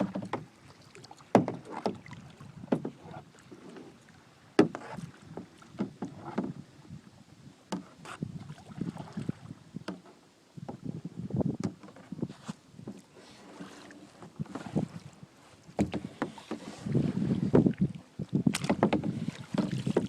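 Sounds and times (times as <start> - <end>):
paddle knocking against boat: 0.0 - 0.6, 1.2 - 3.9, 4.6 - 6.7, 7.7 - 8.2, 9.8 - 15.0, 15.7 - 17.8, 18.4 - 20.0
paddle splashing in water: 0.0 - 20.0.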